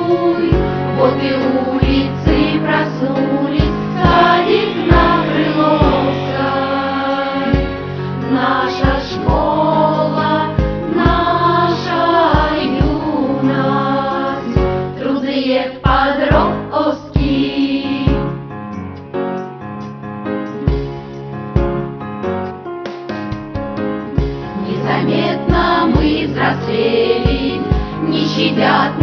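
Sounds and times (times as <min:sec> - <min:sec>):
choir singing: 0:00.0 - 0:18.3, 0:24.6 - 0:29.0
instrumental accompaniment with beat: 0:00.2 - 0:15.2, 0:15.8 - 0:29.0.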